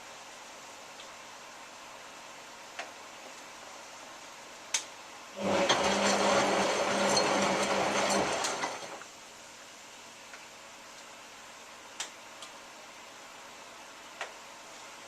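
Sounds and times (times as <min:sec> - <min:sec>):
washing machine motor hum: 0:05.4 - 0:09.0.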